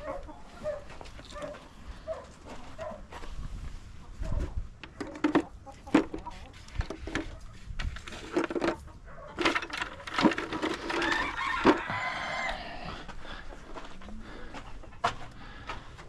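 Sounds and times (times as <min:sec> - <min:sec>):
chicken calling: 0:10.8 - 0:13.6.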